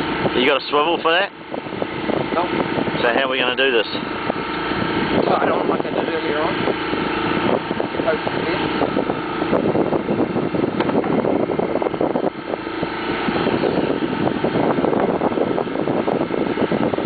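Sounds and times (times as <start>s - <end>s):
boat motor droning: 0.0s - 17.0s.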